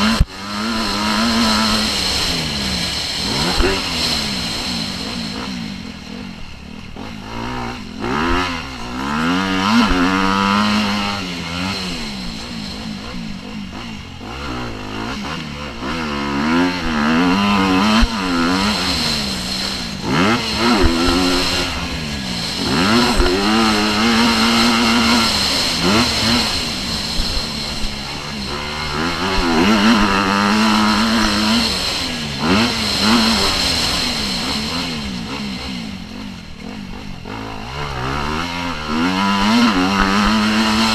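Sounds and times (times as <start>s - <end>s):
motocross bike engines revving: 0.0s - 40.9s.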